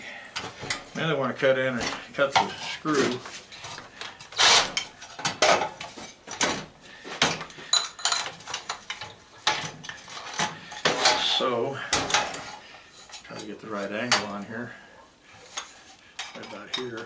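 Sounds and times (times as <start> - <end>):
metal tools clanking: 7.7 - 14.4, 15.5 - 17.0.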